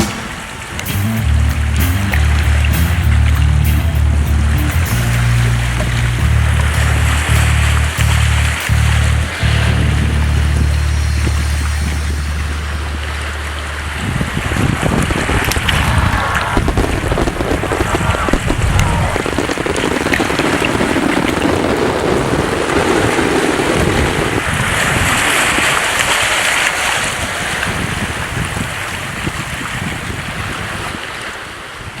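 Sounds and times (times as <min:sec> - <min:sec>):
wind blowing: 0:00.0 - 0:25.0
sea waves washing: 0:00.0 - 0:27.3.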